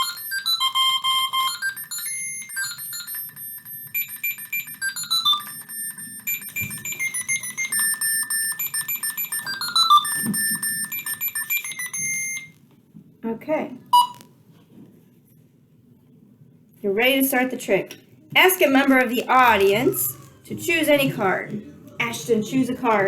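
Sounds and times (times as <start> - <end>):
robotic toy beeping tune: 0.0 - 12.5, 14.0 - 14.2.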